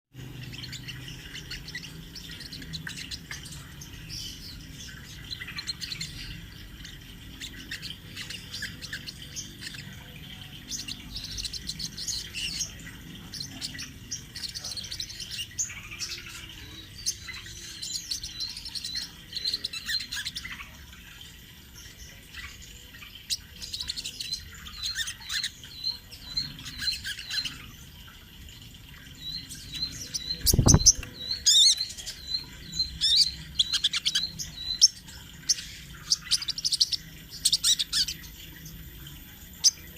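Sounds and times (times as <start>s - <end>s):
bird chirps and trills: 0.1s - 39.9s.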